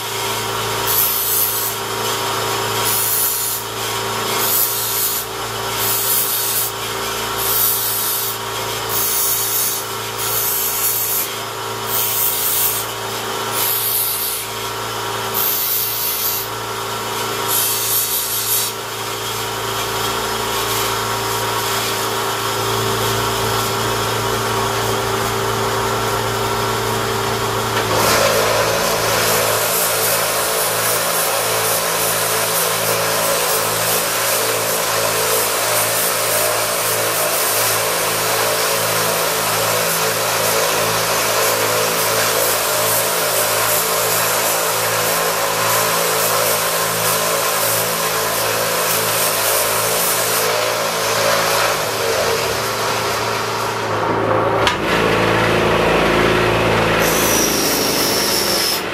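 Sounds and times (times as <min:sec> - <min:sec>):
knife sharpening machine humming: 0:00.0 - 0:58.9
blade grinding on sharpener: 0:00.8 - 0:16.6, 0:17.2 - 0:19.4, 0:27.8 - 0:52.7, 0:56.8 - 0:58.9.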